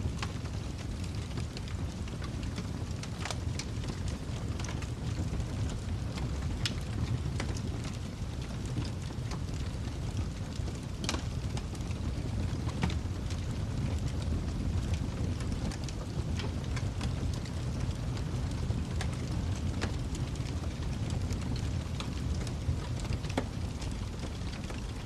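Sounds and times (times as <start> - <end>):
fire crackling and popping: 0.0 - 25.0
fire flames rumbling: 0.0 - 25.0.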